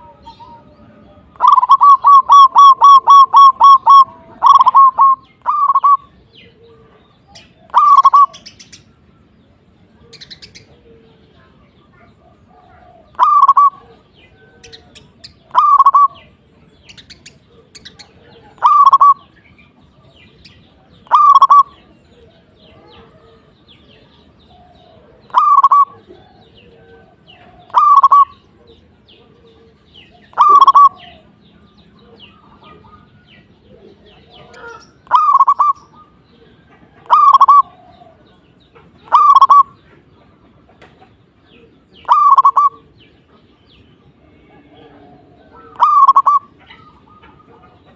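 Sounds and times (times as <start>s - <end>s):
zebra dove cooing: 0.0s - 8.6s, 12.2s - 16.4s, 17.1s - 19.4s, 21.0s - 23.5s, 24.5s - 31.3s, 32.0s - 39.8s, 41.5s - 43.1s, 44.5s - 47.9s.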